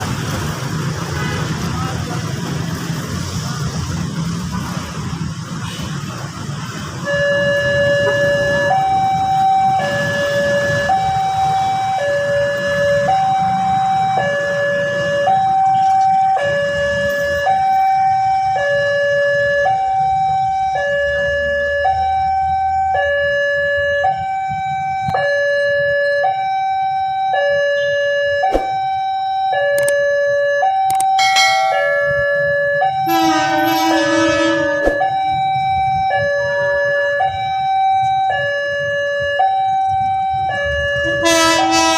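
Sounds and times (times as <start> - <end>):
road traffic rumble: 0.0 - 41.9
level crossing two-tone alarm: 7.0 - 41.9
horn: 33.1 - 34.8, 41.1 - 41.9.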